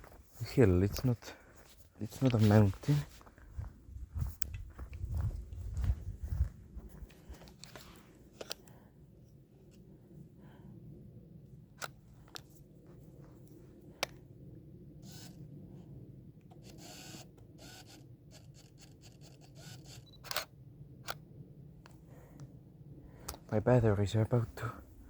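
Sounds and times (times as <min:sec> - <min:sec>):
camera shutter clicks: 0:18.7 - 0:21.2.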